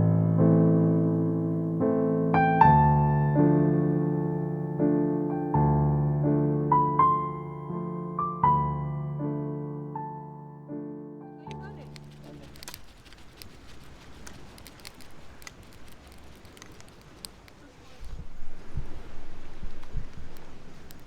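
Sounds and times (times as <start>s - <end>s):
soft piano melody: 0.0s - 12.8s.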